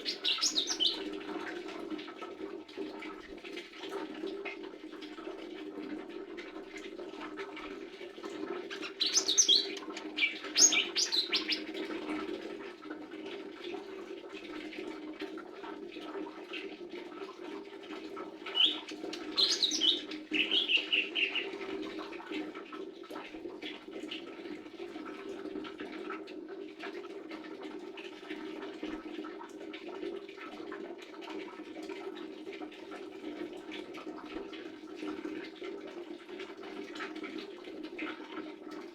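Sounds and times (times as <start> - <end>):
bird chirping and warbling: 0.0 - 1.1, 8.8 - 11.7, 18.4 - 21.6.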